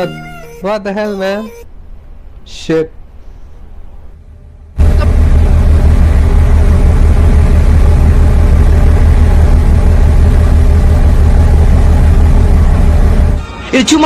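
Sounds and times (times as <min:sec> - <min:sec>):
low mechanical drone with throb: 0:03.7 - 0:13.4.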